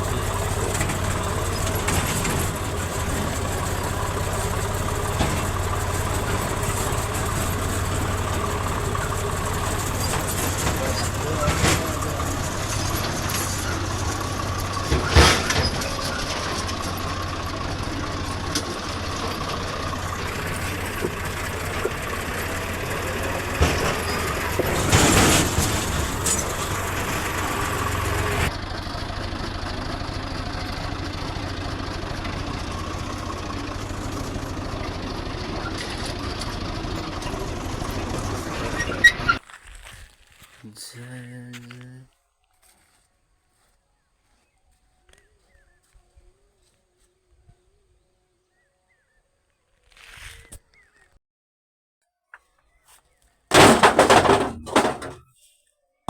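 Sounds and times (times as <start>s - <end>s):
diesel engine idling: 0.0s - 39.4s.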